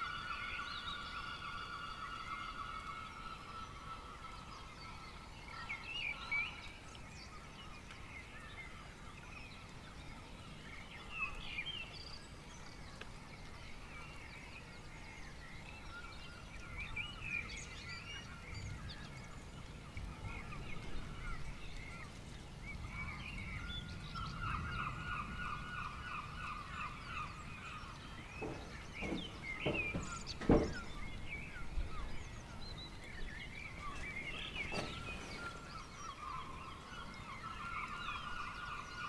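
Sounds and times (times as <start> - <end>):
bird honking call: 28.4 - 31.2.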